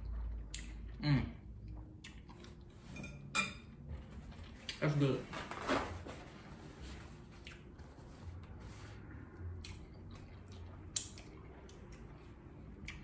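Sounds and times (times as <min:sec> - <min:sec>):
chewing and lip smacks: 0:00.4 - 0:01.0, 0:01.6 - 0:02.7, 0:07.4 - 0:07.7, 0:09.6 - 0:13.0.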